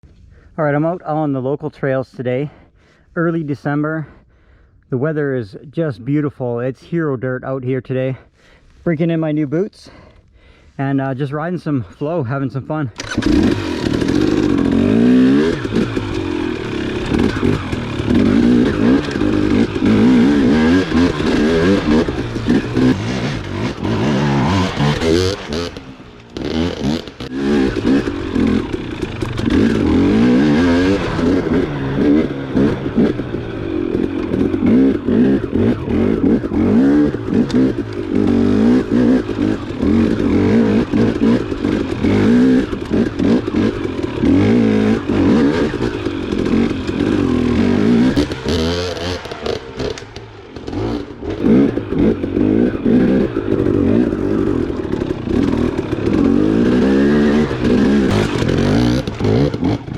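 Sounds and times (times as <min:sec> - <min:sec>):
dirt bike engine revving: 0:13.0 - 0:59.9.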